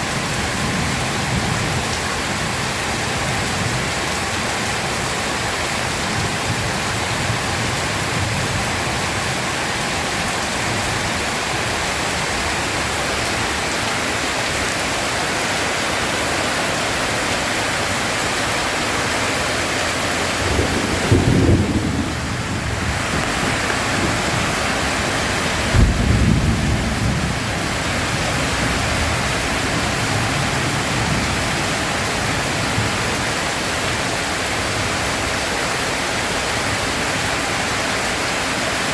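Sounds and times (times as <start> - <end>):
heavy rain: 0.0 - 38.9
thunder rumbling: 18.1 - 33.4.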